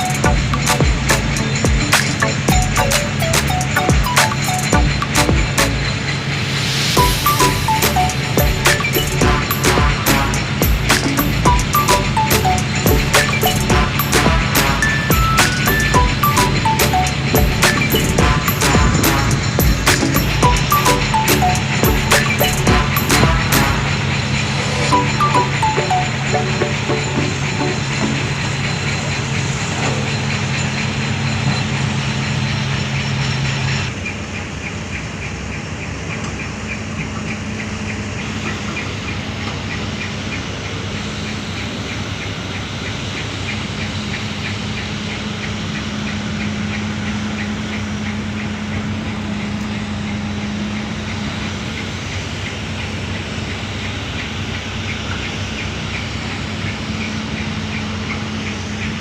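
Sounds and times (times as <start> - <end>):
fast even ticking: 0.0 - 6.0, 7.0 - 23.9
diesel excavator engine drone: 0.0 - 59.0.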